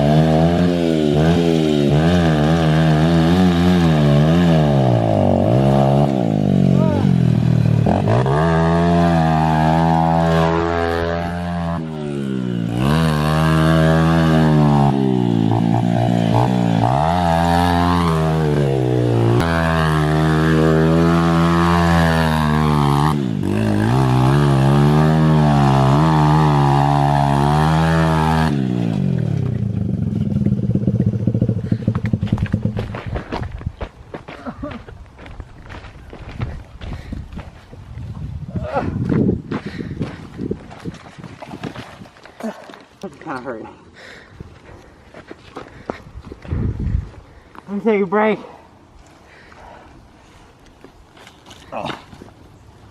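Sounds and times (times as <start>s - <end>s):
dirt bike engine revving: 0.0s - 33.3s.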